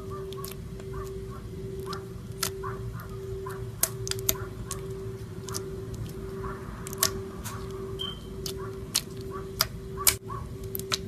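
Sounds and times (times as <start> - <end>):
low hum: 0.0 - 11.0
slime squeezing wet pops: 0.3 - 1.1, 1.8 - 2.6, 3.8 - 6.2, 6.8 - 11.0.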